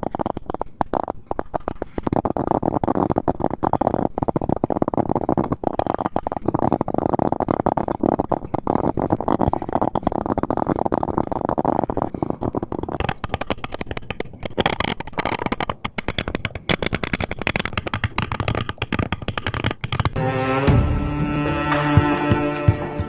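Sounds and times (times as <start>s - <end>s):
carving tool scraping wood: 0.0s - 23.0s
bowed string music: 20.2s - 23.0s.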